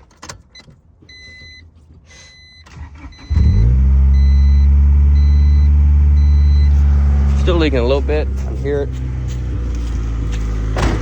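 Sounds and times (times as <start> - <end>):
car engine starting and idling: 2.6 - 11.0.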